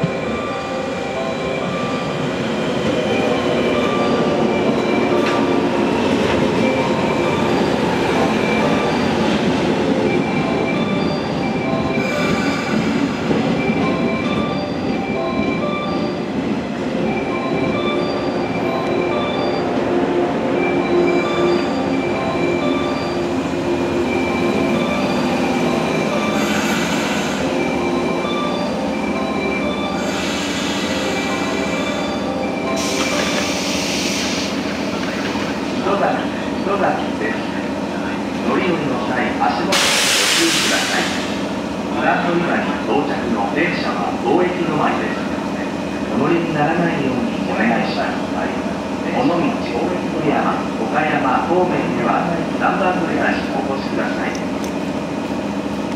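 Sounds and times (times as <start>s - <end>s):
electric train drawing to a stop: 0.0s - 55.9s
train brake hiss: 26.3s - 27.6s, 30.0s - 32.0s, 32.7s - 34.9s, 39.7s - 41.4s.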